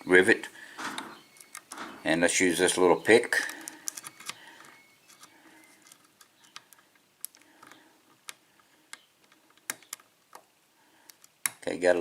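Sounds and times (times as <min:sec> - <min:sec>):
lock pick clicking in padlock: 0:00.9 - 0:02.0, 0:03.4 - 0:10.4.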